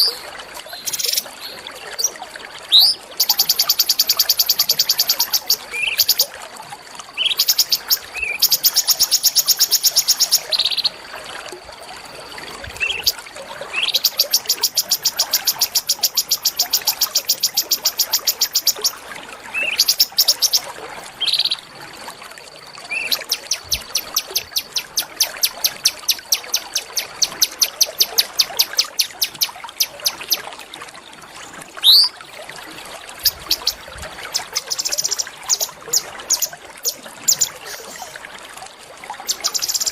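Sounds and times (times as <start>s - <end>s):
songbird trilling: 2.7s - 6.3s, 19.6s - 20.6s, 22.9s - 30.4s, 31.8s - 32.2s, 39.3s - 39.9s
bird rising whistles: 31.8s - 32.1s.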